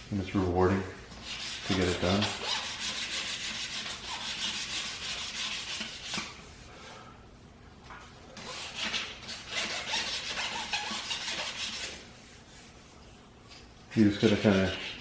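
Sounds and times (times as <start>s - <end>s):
sandpaper rubbing by hand: 1.0s - 6.7s, 8.4s - 12.9s, 14.0s - 15.0s.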